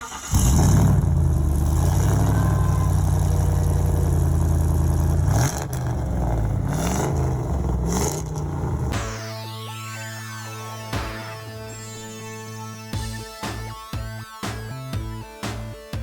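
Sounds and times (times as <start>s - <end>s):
car engine idling: 0.0s - 9.0s
engine revving: 0.0s - 9.3s.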